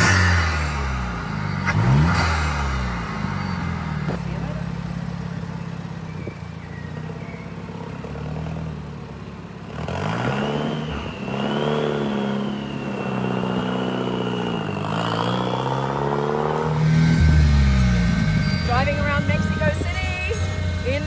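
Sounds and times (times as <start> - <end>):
car engine accelerating: 0.0 - 21.0
turbo whine: 16.7 - 21.0.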